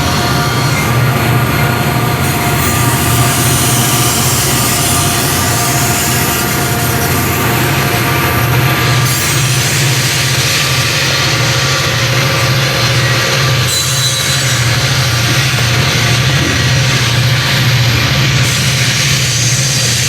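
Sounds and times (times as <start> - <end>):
low diesel engine drone: 0.0 - 13.7
rail and wheel noise: 0.0 - 20.0.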